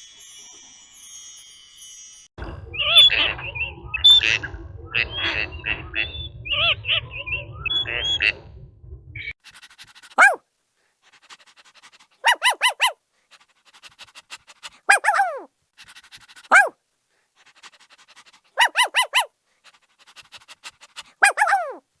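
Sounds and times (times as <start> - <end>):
dog panting: 9.4 - 10.4, 11.0 - 16.7, 17.3 - 21.8
dog barking high yaps: 10.0 - 10.4, 12.2 - 13.0, 14.4 - 15.5, 16.4 - 16.7, 18.5 - 19.3, 20.7 - 21.8.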